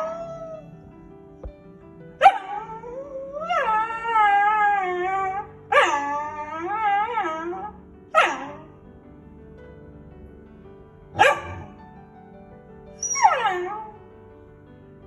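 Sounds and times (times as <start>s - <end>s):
faint background music: 0.0s - 15.0s
dog barking sharply: 11.2s - 11.7s
dog baying: 11.2s - 11.7s.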